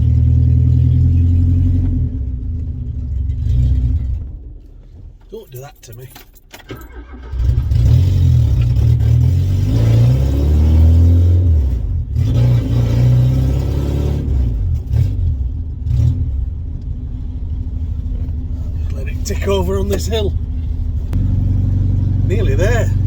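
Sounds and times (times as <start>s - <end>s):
loud engine revving: 7.2s - 16.4s, 21.1s - 23.0s.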